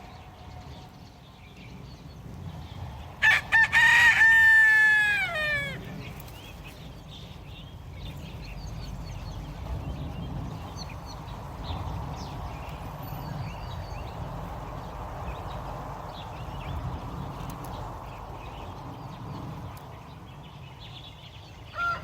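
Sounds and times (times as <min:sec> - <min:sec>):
rooster crowing: 0:03.2 - 0:05.9, 0:21.7 - 0:22.0.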